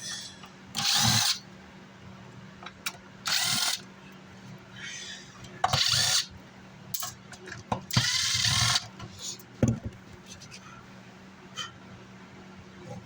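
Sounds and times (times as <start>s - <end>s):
power screwdriver whirring: 0.8s - 1.4s, 3.3s - 3.8s.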